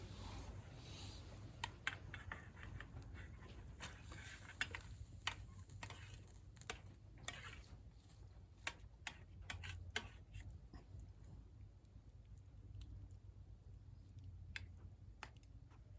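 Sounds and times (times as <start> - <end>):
bonfire crackling snaps: 3.8 - 7.5.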